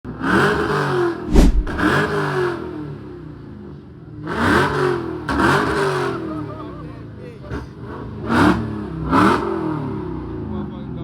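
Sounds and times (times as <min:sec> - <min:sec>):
sharp loud thump: 0:01.3 - 0:01.9.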